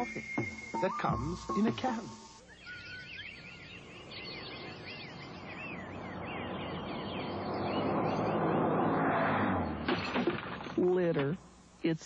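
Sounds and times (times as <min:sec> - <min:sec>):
birds chirping: 0:00.0 - 0:10.2.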